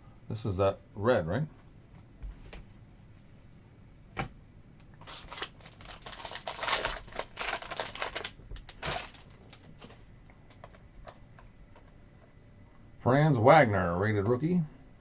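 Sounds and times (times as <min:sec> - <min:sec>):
packaging crackling and rustling: 0:05.0 - 0:11.2.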